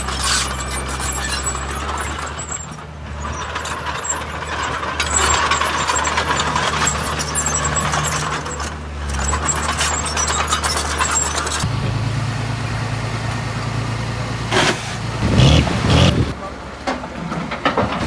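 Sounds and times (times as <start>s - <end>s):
heavy diesel engine: 15.2s - 18.0s.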